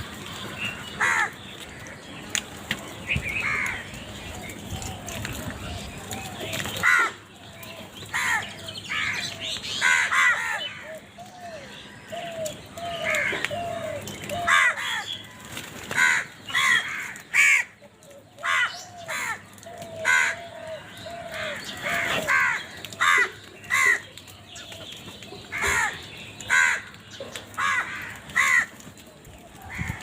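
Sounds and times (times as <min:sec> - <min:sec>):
soft low crow calls: 0:00.0 - 0:02.2, 0:03.4 - 0:30.0
crows cawing: 0:00.4 - 0:02.0, 0:03.4 - 0:04.0, 0:06.2 - 0:07.2, 0:08.1 - 0:24.2, 0:25.5 - 0:28.9.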